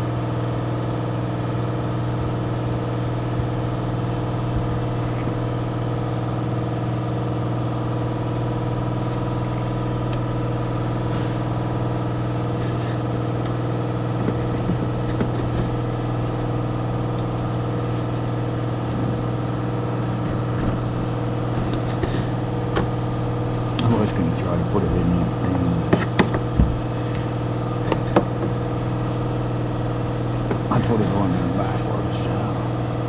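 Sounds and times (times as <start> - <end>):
handling clicks and knocks: 14.2 - 15.8, 25.8 - 28.6.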